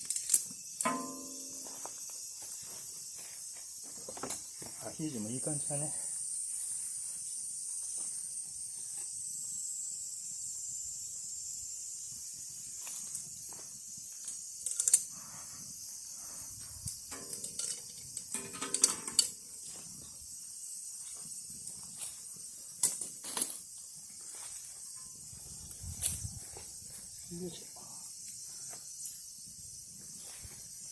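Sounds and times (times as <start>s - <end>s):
steady high hiss: 0.0s - 30.9s
clicks knocks and clatters: 17.1s - 19.4s.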